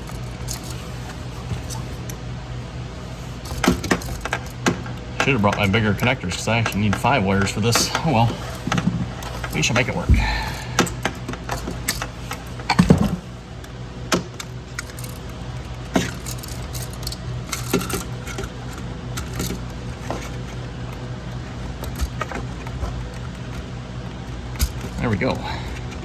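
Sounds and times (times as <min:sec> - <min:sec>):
low steady hum: 0:00.0 - 0:26.0
wire connectors clicking: 0:03.5 - 0:26.0.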